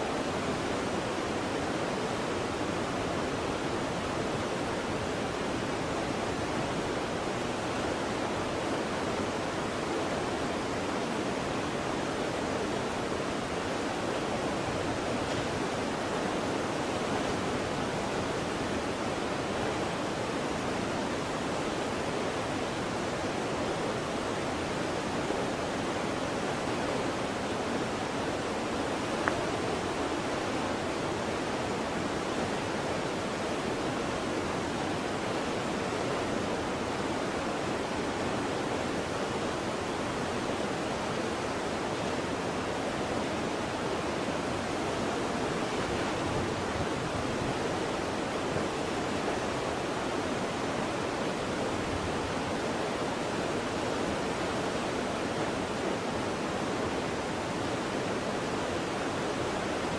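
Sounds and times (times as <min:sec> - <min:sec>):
waterfall rushing: 0:00.0 - 0:59.9
faint click: 0:29.2 - 0:29.4.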